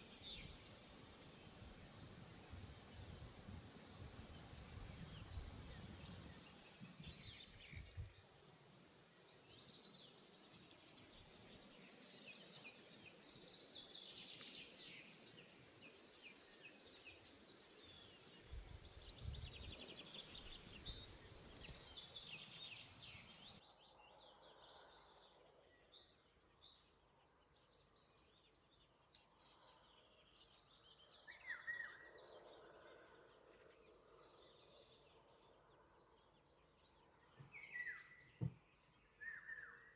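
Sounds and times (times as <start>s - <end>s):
background hiss: 0.0s - 23.6s
songbirds chirping and trilling: 0.0s - 39.9s.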